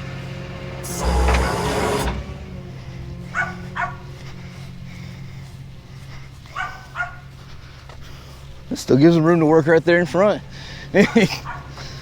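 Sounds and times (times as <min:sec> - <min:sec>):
low engine hum: 0:00.0 - 0:12.0
dog barking: 0:03.3 - 0:04.0, 0:06.5 - 0:07.3, 0:11.4 - 0:11.7.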